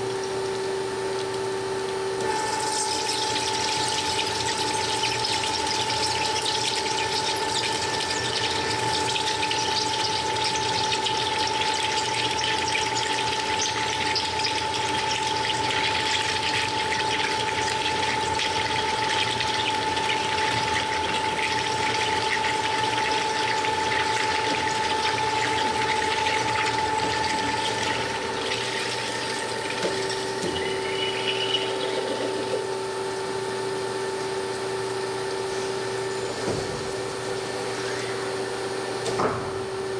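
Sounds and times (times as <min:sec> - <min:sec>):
machine hum with held tones: 0:00.0 - 0:39.9
cnc cutting machine hissing: 0:30.1 - 0:32.8.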